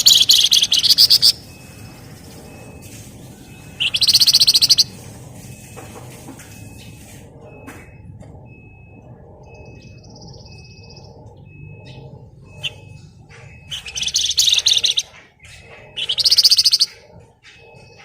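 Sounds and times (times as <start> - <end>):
bird high buzzy trill: 0.0 - 5.0, 9.5 - 18.0
bird rattling song bursts: 0.0 - 5.0, 11.8 - 18.0.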